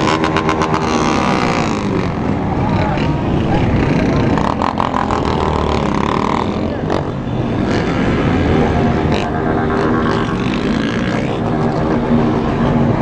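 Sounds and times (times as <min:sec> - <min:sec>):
motorcycle engines running: 0:00.0 - 0:13.0.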